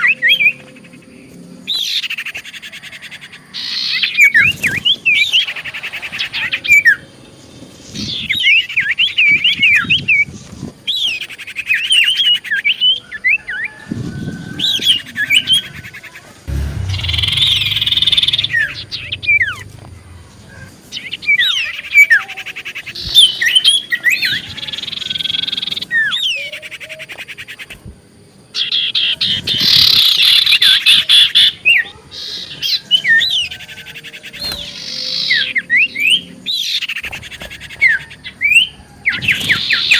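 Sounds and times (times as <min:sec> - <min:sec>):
low bump and rumble: 0:16.5 - 0:21.4, 0:37.1 - 0:39.9.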